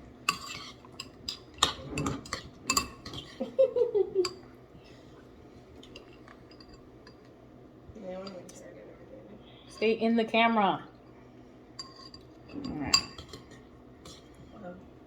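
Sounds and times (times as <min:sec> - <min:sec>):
spoons clinking against a bowl: 0:00.3 - 0:03.5, 0:04.2 - 0:04.4, 0:05.8 - 0:07.3, 0:11.8 - 0:14.3.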